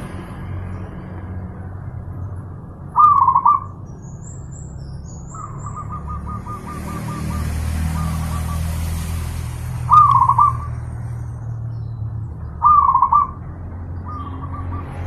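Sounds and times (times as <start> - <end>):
dove cooing: 3.0 - 3.8, 9.9 - 10.7, 12.6 - 13.4.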